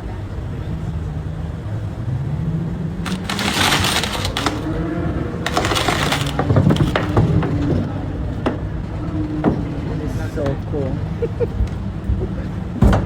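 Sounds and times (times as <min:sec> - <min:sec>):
loud clattering crackling noise: 0:03.0 - 0:04.8, 0:05.4 - 0:07.6.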